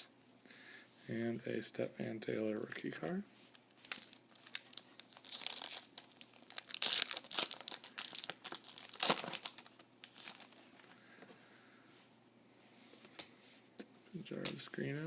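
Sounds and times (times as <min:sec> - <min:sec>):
plastic wrapper crinkling and tearing: 0:03.0 - 0:10.6.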